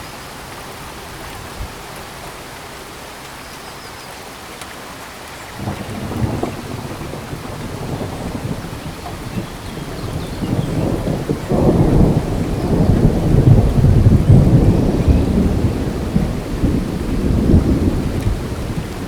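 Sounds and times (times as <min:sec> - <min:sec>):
heavy rain: 0:00.0 - 0:19.0
thunder rolling: 0:05.6 - 0:19.0.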